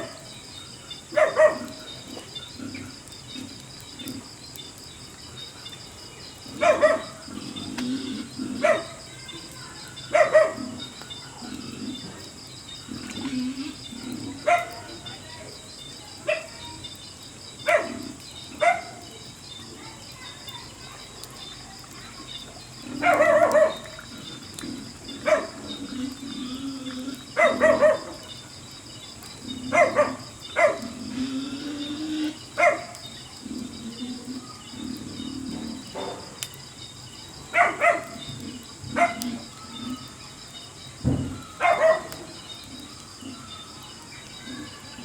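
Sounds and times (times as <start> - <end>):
animal barking calls: 1.1 - 4.3, 6.5 - 12.1, 12.9 - 15.2, 16.2 - 16.6, 17.6 - 19.2, 22.8 - 28.5, 29.4 - 36.5, 37.4 - 40.2, 41.0 - 43.8.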